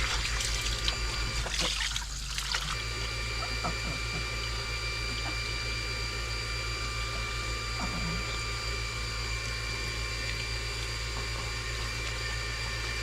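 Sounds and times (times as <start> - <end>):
water splashing: 0.0 - 2.8
electric water pump running: 0.0 - 13.0.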